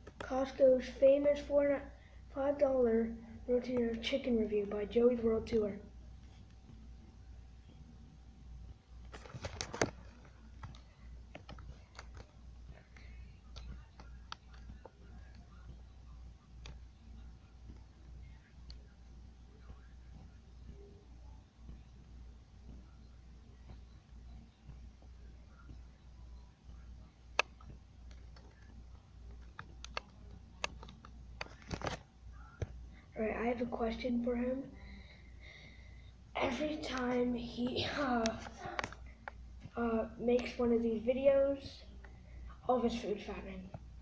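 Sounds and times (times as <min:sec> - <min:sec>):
steady low hum: 0:00.0 - 0:44.0
keyboard clicks and taps: 0:29.3 - 0:32.0.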